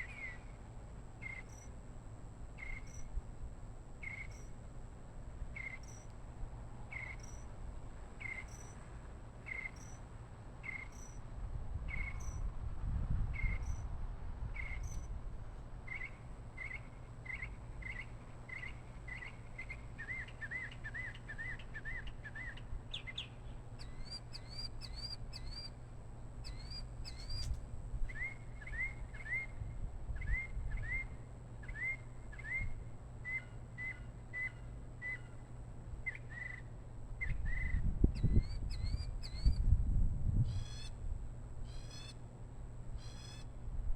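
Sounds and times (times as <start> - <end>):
bird chirping: 5.6 - 6.0, 8.2 - 8.7, 9.5 - 10.0, 15.9 - 25.8, 26.4 - 29.5, 37.2 - 39.6.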